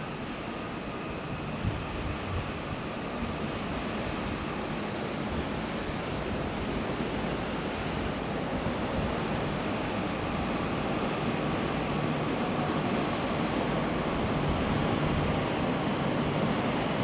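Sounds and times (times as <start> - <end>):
train rushing rumble: 0.0 - 17.0.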